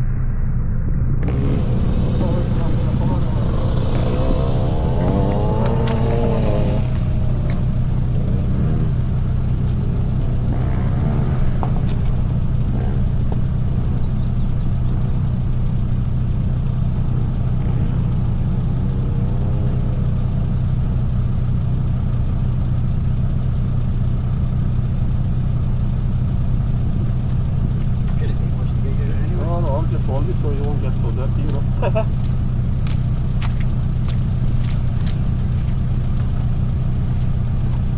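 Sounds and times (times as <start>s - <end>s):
vehicle engine idling: 1.2s - 37.9s
faint voices: 1.8s - 8.9s.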